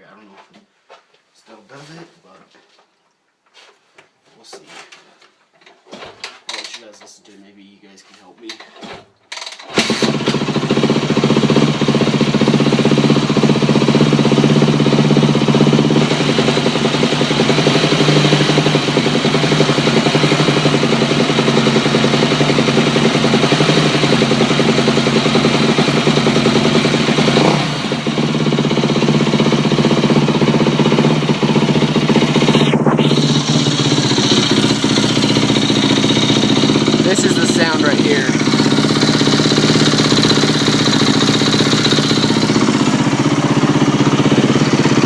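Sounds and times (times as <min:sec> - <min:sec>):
engine clicking: 0:09.3 - 0:45.0
motorcycle engine idling: 0:09.8 - 0:45.0.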